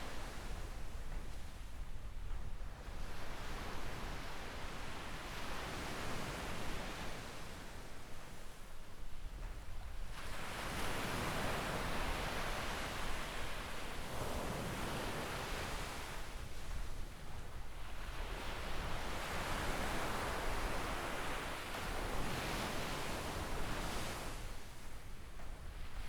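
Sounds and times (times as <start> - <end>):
waves washing up a beach: 2.8 - 9.0, 10.0 - 26.0.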